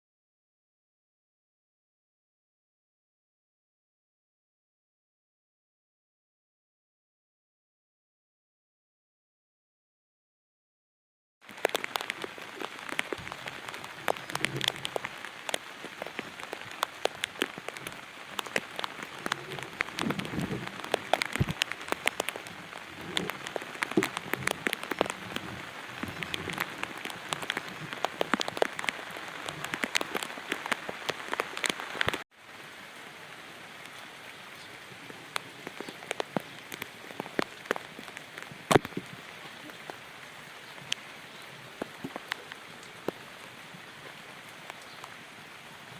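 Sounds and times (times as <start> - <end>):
raindrops ticking on surface: 11.4 - 45.9
steady rain: 11.4 - 45.9.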